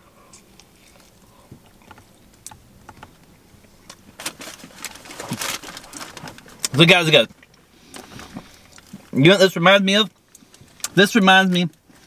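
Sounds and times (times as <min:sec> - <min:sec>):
person chewing crispy food: 0:00.2 - 0:02.6, 0:03.2 - 0:09.2.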